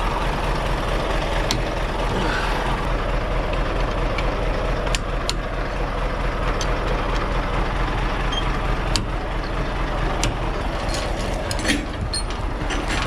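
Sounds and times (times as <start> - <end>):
truck diesel engine idling: 0.0 - 13.0
sharp metallic clicks: 1.4 - 1.9, 4.1 - 5.5.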